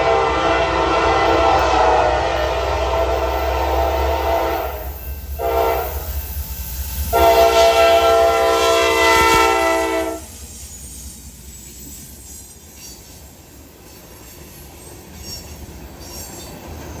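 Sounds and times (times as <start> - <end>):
locomotive air horn blasts: 0.0 - 6.1, 7.1 - 10.3
low rumble of train: 0.0 - 17.0.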